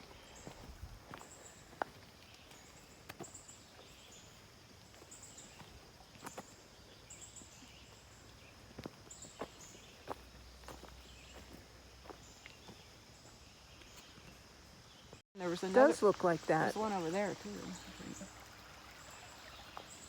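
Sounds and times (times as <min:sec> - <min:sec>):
footsteps crunching on trail: 0:00.0 - 0:15.9
insects hissing: 0:00.0 - 0:20.0.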